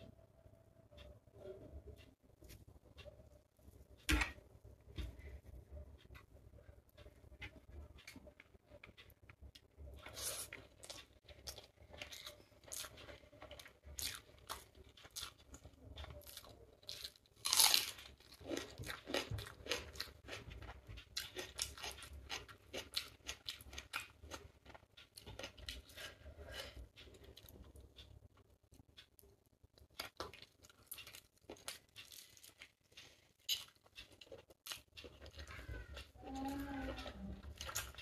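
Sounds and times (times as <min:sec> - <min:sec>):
person chewing: 0:07.5 - 0:38.0.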